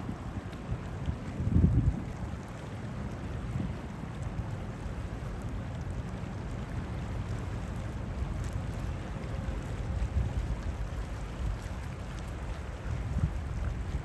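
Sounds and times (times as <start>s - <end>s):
wind buffeting microphone: 0.0s - 2.5s, 9.4s - 14.0s.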